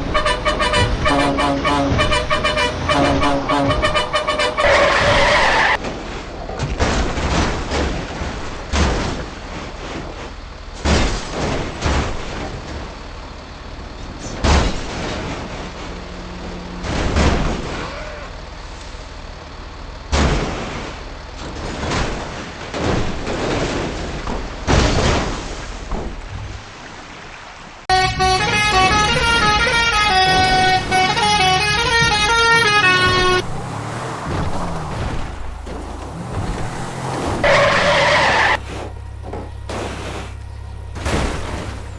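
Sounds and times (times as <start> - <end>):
cartoon engine noise: 0.0 - 5.8, 27.9 - 41.9
musical truck horn tune: 0.0 - 5.8, 27.9 - 41.9.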